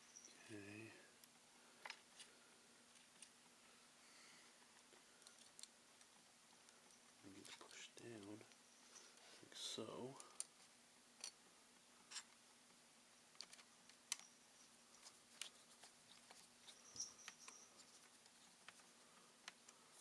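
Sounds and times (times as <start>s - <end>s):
faint steady hum: 0.0s - 20.0s
laptop parts clicking: 13.3s - 14.3s.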